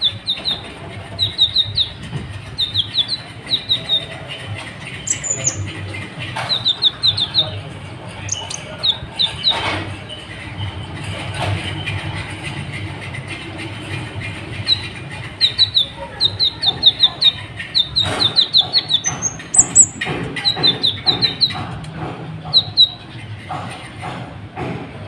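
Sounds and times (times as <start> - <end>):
sunbird chirping: 0.0 - 4.3, 5.0 - 5.7, 6.4 - 7.6, 14.6 - 21.6.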